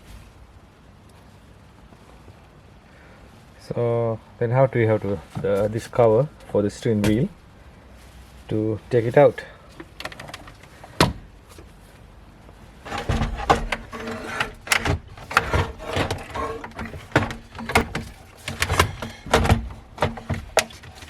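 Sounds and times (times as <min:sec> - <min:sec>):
clicks and knocks on plastic trim: 0:12.9 - 0:21.0.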